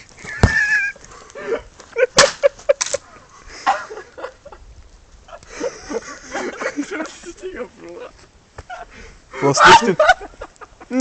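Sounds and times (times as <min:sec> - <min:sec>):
stick cracking on campfire: 0:00.0 - 0:03.1.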